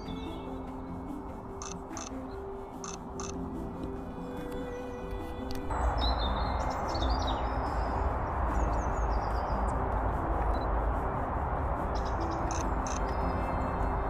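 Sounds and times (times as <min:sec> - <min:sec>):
steady rushing noise: 0:00.0 - 0:14.0
small birds chirping: 0:05.6 - 0:09.8, 0:11.9 - 0:13.6.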